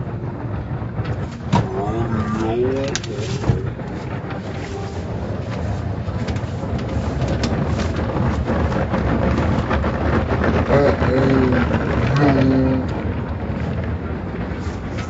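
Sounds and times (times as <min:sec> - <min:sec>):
car wash machinery rumble: 0:00.0 - 0:15.0
car wash spraying water: 0:01.0 - 0:11.8.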